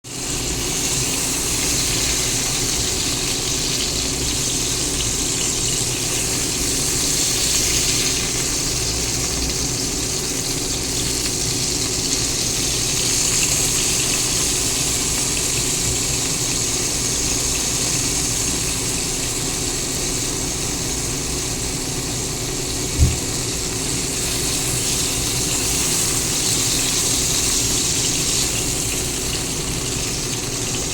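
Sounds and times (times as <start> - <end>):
sausages sizzling in a pan: 0.0 - 30.9
dull thump: 23.0 - 23.3.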